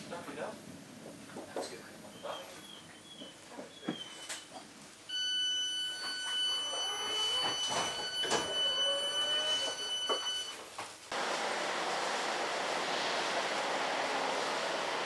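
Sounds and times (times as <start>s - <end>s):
rushing hiss of outdoor noise: 11.1s - 15.0s.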